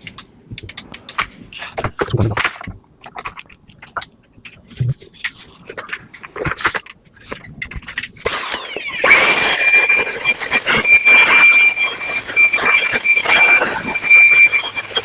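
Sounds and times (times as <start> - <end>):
cleaning machine motor whining: 8.5 - 15.0.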